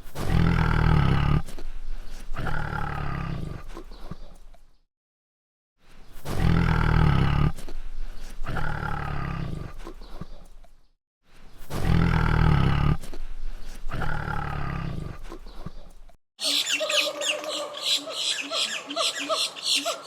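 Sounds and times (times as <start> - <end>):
large animal deep two-part call: 16.4 - 20.0.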